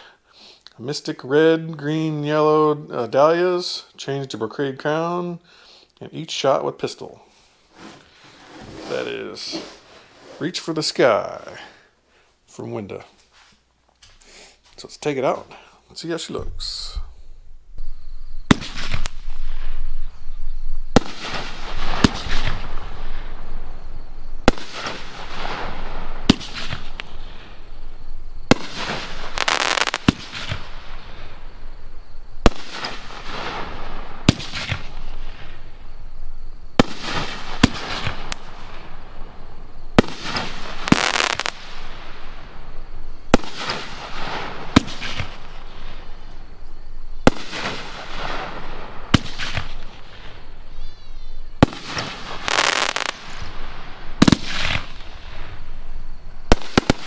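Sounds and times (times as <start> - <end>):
firework hiss: 16.4 - 20.3, 20.9 - 57.0
firework launch thumps: 18.5 - 19.8, 20.9 - 23.4, 24.4 - 27.8, 28.4 - 31.5, 32.4 - 35.6, 36.7 - 42.4, 43.3 - 46.1, 47.2 - 50.4, 51.6 - 53.5, 54.2 - 55.6.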